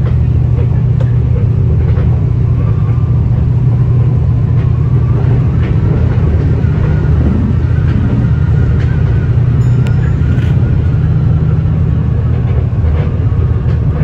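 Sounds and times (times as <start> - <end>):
train rumbling inside carriage: 0.0 - 14.0.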